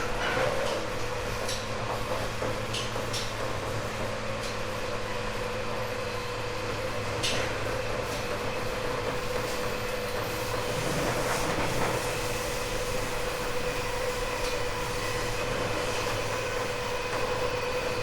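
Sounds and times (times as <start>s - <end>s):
train motor whine: 0.0s - 18.0s
train rolling noise: 0.0s - 18.0s.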